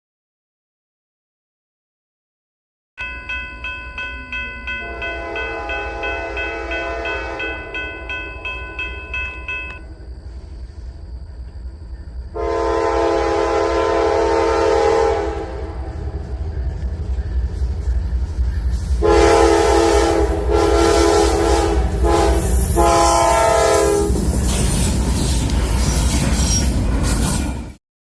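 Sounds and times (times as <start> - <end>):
bell ringing rapidly: 3.0 - 9.8
locomotive engine rumbling: 3.1 - 27.8
locomotive horn: 4.8 - 7.8, 12.4 - 16.5, 19.0 - 24.2.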